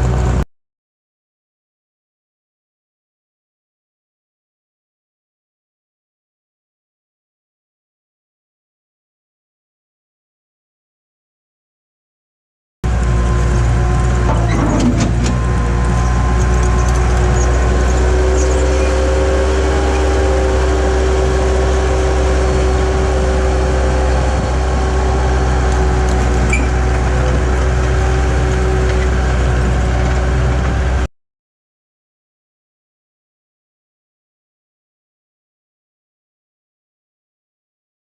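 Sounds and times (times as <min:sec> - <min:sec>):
skid steer engine running: 0:00.0 - 0:00.4, 0:12.8 - 0:31.1.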